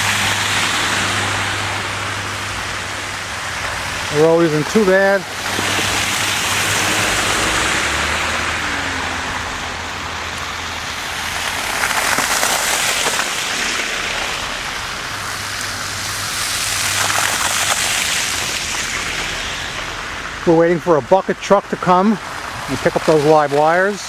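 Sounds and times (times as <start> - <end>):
low engine rumble: 0.0 - 17.0
tyres hissing on wet road: 0.0 - 24.0.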